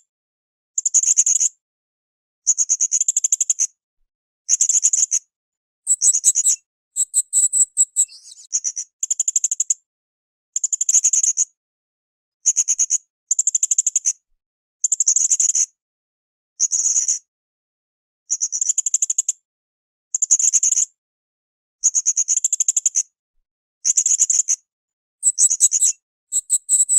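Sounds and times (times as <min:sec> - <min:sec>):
parrot buzzy trilled chirps: 0:05.9 - 0:08.4, 0:25.2 - 0:26.9.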